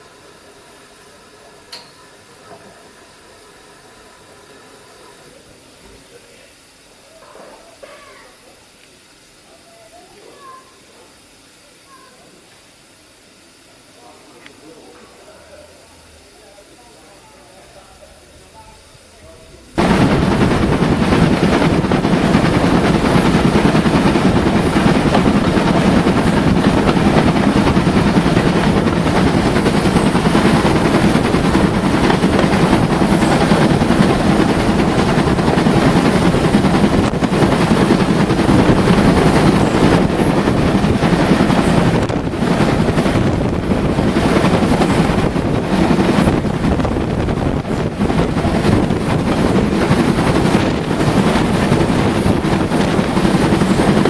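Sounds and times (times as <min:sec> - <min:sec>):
moving train rumble: 0:19.2 - 0:54.0
wind buffeting microphone: 0:19.7 - 0:54.0.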